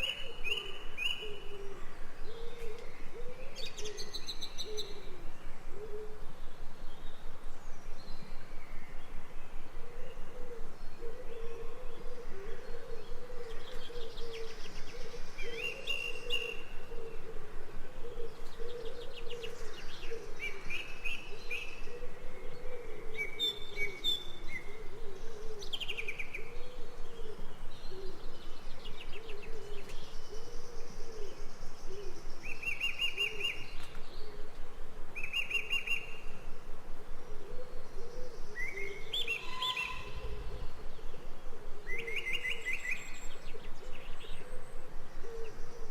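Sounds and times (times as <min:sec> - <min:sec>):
birds chirping and trilling: 0:35.2 - 0:45.9.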